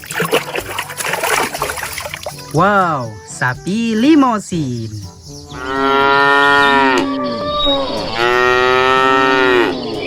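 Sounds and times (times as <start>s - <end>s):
cow mooing: 5.6s - 10.0s.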